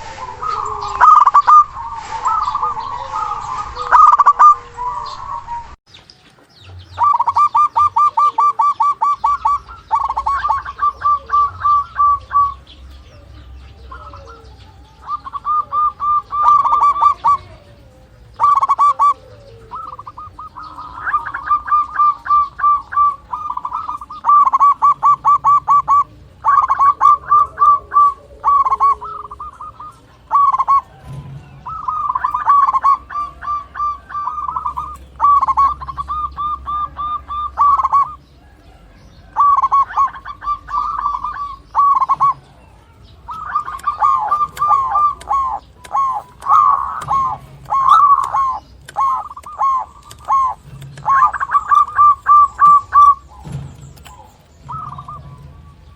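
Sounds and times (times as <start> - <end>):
doves cooing: 0.0 - 55.9.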